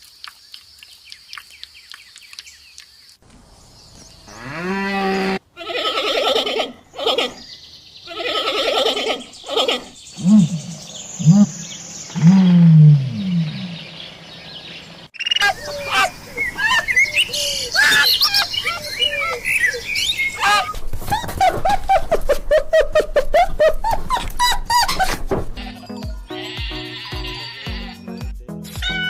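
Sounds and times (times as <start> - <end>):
animal harsh calls and cries: 4.3 - 7.5, 8.1 - 13.9, 15.2 - 24.6, 25.6 - 28.0
faint chirping: 7.4 - 20.7.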